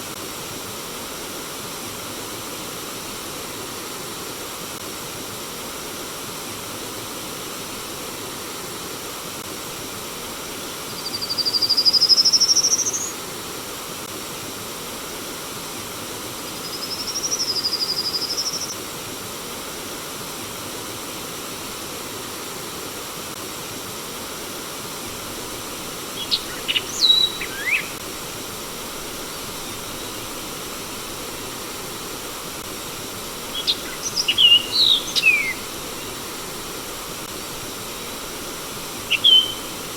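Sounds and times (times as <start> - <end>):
stream water flowing: 18.9 - 39.9
bird chirping: 26.2 - 28.0, 33.5 - 36.5, 39.1 - 39.9
bird whistling: 26.2 - 28.0, 33.5 - 36.3, 39.1 - 39.8.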